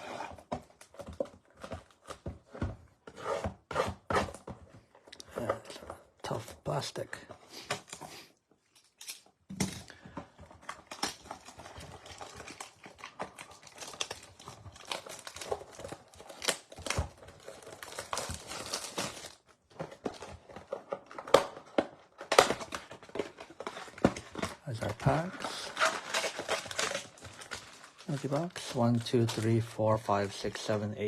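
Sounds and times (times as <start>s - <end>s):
plastic shrink wrap tearing: 10.6s - 19.5s, 24.6s - 29.7s.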